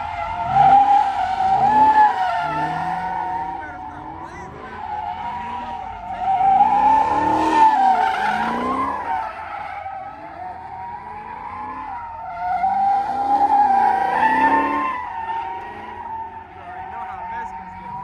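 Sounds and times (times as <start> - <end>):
car engine revving: 0.0 - 18.0
car tires squealing: 0.0 - 18.0.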